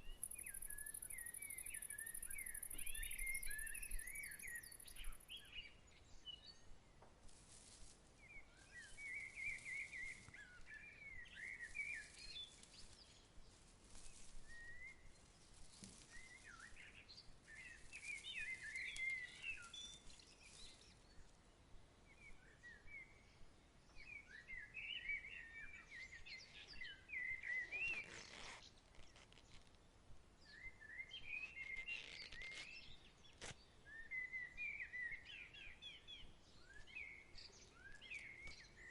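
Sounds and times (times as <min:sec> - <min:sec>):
soft outdoor background hiss: 0:00.0 - 0:38.9
songbirds chirping: 0:00.0 - 0:38.9
brief rustle: 0:27.8 - 0:29.8, 0:31.4 - 0:33.6.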